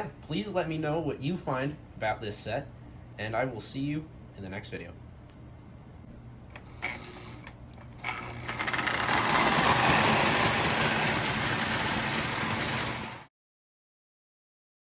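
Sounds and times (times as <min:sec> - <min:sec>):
toy train motor and wheels clattering: 0:06.6 - 0:13.3.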